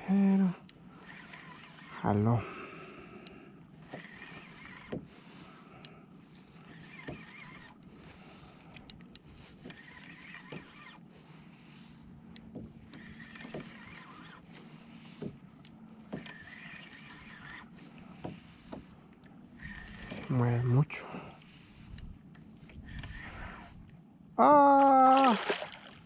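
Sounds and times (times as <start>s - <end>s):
fishing reel winding: 0.6s - 2.1s, 3.9s - 4.9s, 8.7s - 11.0s, 19.6s - 20.4s
water sloshing: 25.1s - 26.0s.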